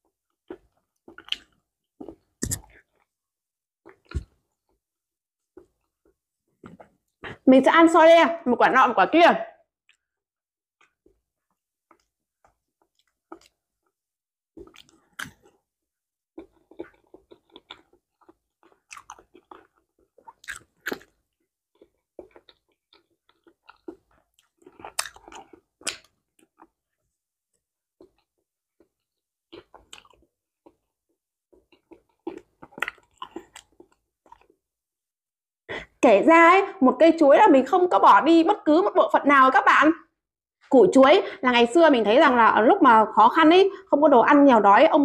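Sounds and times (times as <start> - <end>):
person chewing banana: 0.0 - 3.2, 10.8 - 15.7, 16.3 - 34.7.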